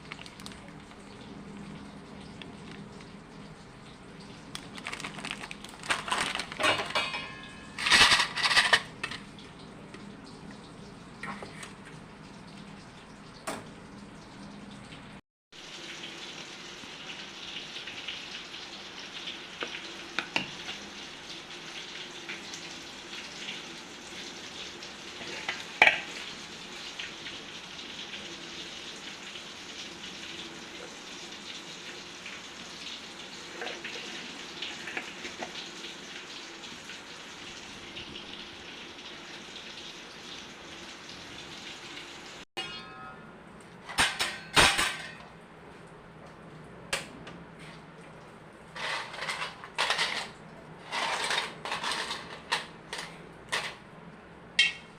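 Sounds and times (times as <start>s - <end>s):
utensils clinking: 4.7s - 9.3s
dishes and utensils clattering: 4.9s - 9.3s, 43.8s - 45.3s, 48.8s - 53.8s.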